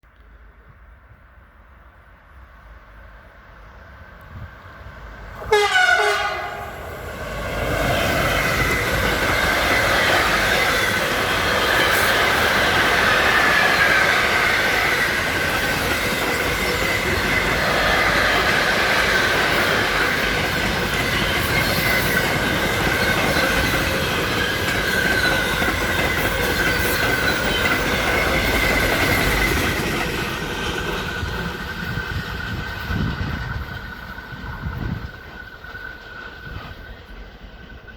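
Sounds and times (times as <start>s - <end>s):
train wagons rumbling: 4.6s - 37.9s
locomotive horn: 5.4s - 6.8s.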